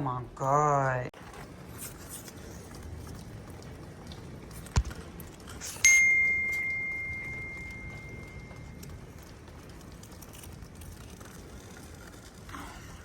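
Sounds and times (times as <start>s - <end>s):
bright ringing ding: 5.8s - 8.8s.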